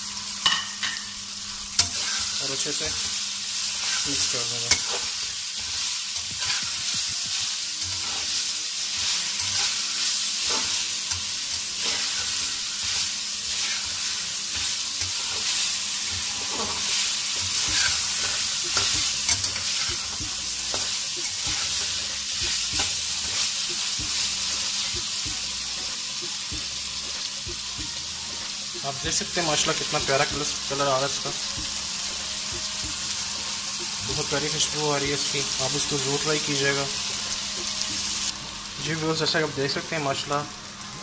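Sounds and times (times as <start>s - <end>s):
chicken sizzling in pan: 0.0s - 41.0s
utensil scraping and knocking pan: 4.7s - 8.3s, 16.1s - 23.4s.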